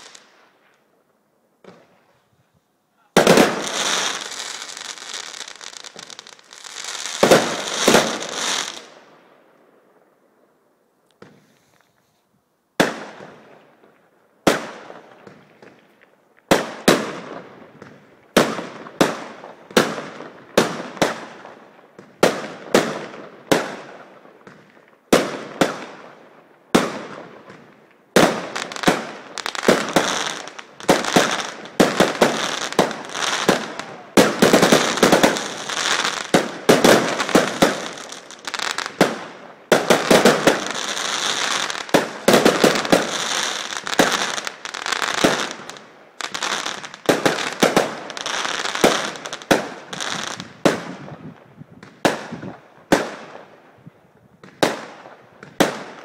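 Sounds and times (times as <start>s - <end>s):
fireworks bangs and crackling: 0.0s - 0.8s, 1.6s - 2.2s, 2.9s - 10.2s, 11.2s - 11.9s, 12.8s - 56.0s.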